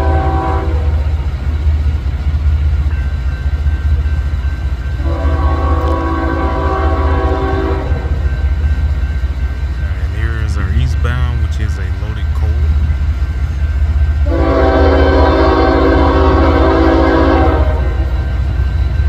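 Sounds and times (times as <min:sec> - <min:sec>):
locomotive air horn blasts: 0:00.0 - 0:01.0, 0:05.0 - 0:08.2, 0:14.2 - 0:18.1
train rumbling: 0:00.0 - 0:19.0.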